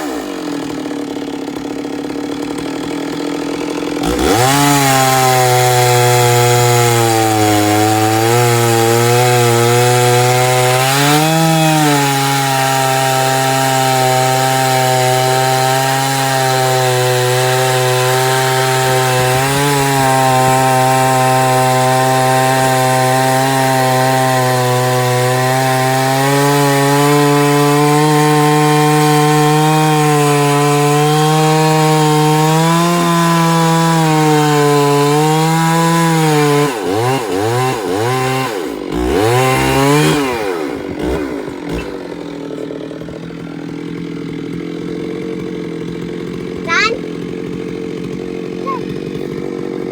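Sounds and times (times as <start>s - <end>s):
chainsaw cutting through log: 0.0s - 49.9s.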